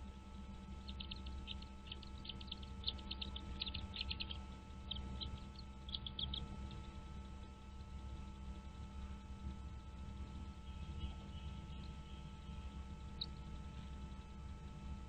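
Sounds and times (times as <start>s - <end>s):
steady low hum: 0.0s - 15.0s
nestling birds chirping: 0.5s - 7.9s, 9.7s - 14.2s.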